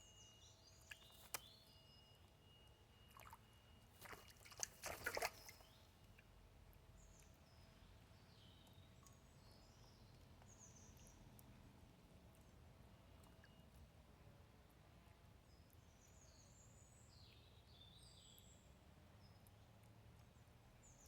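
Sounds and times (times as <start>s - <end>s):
pigeon splashing in shallow water: 0.9s - 1.5s, 3.1s - 6.3s.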